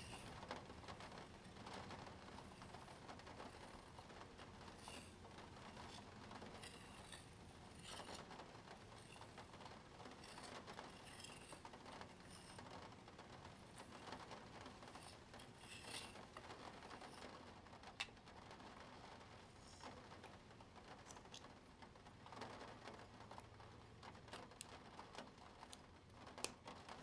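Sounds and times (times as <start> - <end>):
plastic gear wheel scratching: 0.0 - 17.4.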